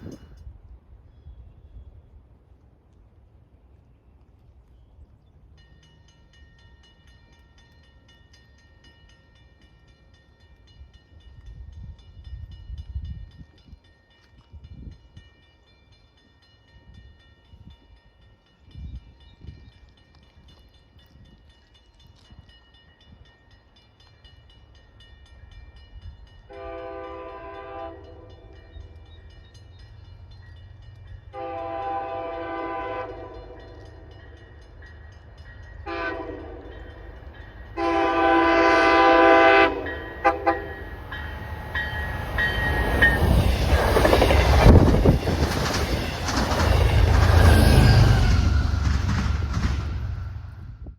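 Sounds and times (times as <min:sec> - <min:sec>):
train rumble: 0:00.0 - 0:15.3, 0:16.8 - 0:50.9
train horn blasts: 0:26.5 - 0:28.6, 0:31.3 - 0:33.8, 0:35.8 - 0:37.0, 0:37.7 - 0:41.4.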